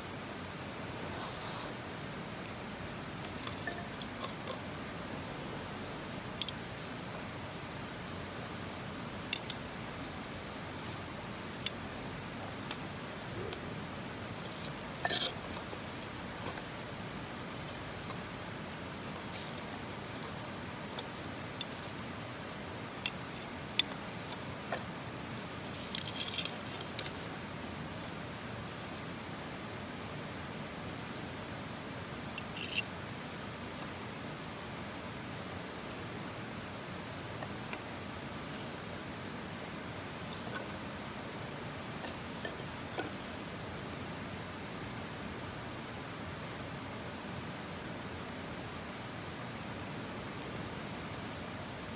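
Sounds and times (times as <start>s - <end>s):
steady hiss: 0.0s - 51.9s
sharp clicks and clinks: 3.3s - 4.6s.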